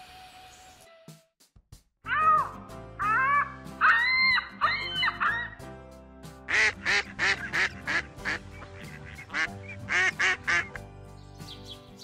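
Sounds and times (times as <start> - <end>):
soft background music: 2.1 - 12.0.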